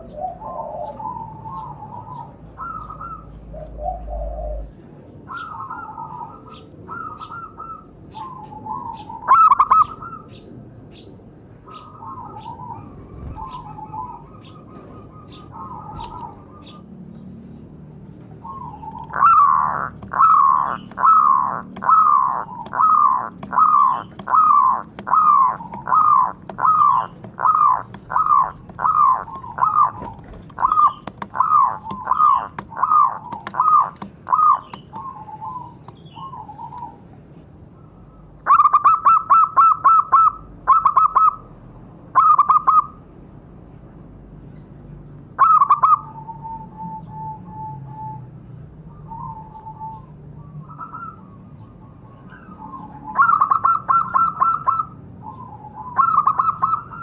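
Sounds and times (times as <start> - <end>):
dove cooing: 0.0 - 10.4, 11.6 - 17.0, 18.4 - 37.0, 38.4 - 41.4, 45.4 - 48.2, 48.9 - 57.0
rapid stuttered bird notes: 18.5 - 36.7.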